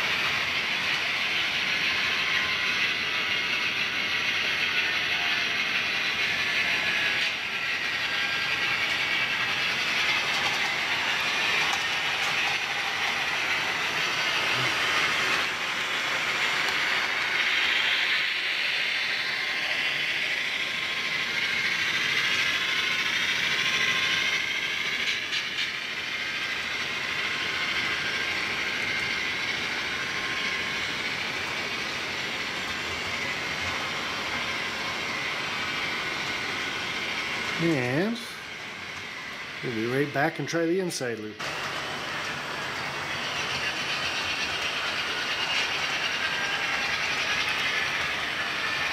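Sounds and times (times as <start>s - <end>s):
model train motor whirring: 0.0s - 48.9s
wheels on rails: 0.0s - 48.9s.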